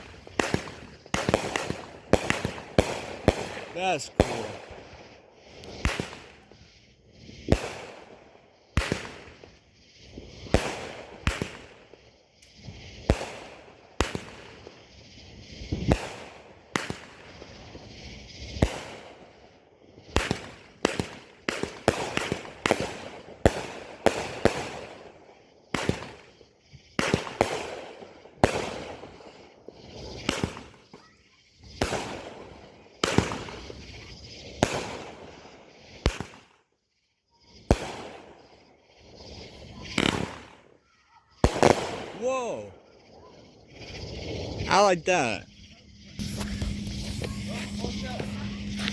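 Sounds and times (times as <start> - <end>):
fireworks banging: 0.0 - 6.8, 43.7 - 48.9
fireworks hissing: 0.0 - 22.5, 28.9 - 36.2, 43.4 - 48.9.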